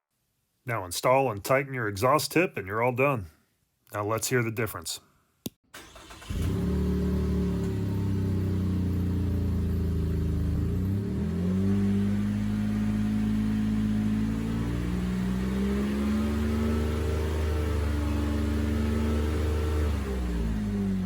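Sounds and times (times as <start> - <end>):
car engine exhaust drone: 6.0 - 21.0.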